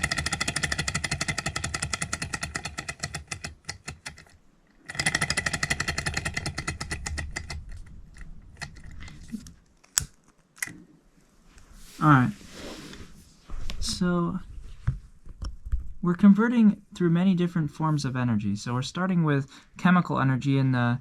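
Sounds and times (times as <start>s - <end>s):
small engine ticking: 0.0s - 7.6s.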